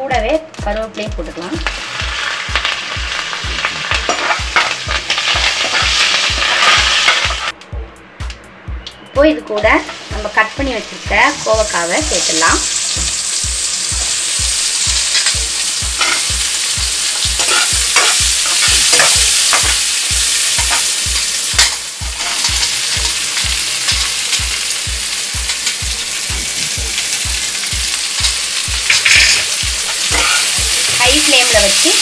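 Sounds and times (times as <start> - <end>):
vegetables sizzling in oil: 0.0 - 7.6, 9.4 - 32.0
metal spatula scraping pan: 17.4 - 19.8, 28.9 - 31.0.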